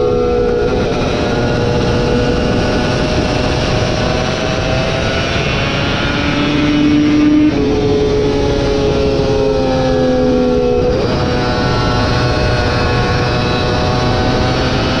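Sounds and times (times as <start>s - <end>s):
motorbike engine shifting and revving: 0.0s - 15.0s.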